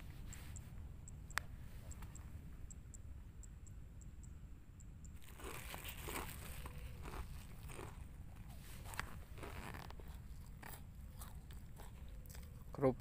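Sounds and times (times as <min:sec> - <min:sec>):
crisp cracker crunches: 0:05.2 - 0:12.7.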